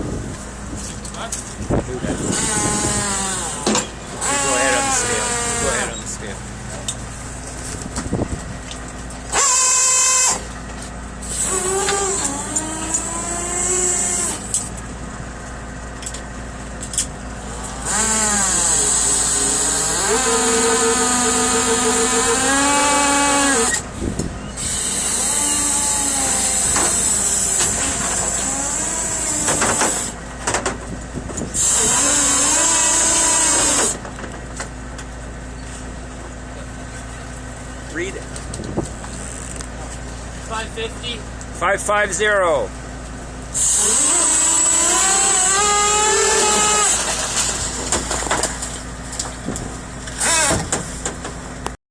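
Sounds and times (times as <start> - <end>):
machinery whining: 0.0 - 37.3, 37.9 - 51.8
steady low hum: 22.9 - 51.7.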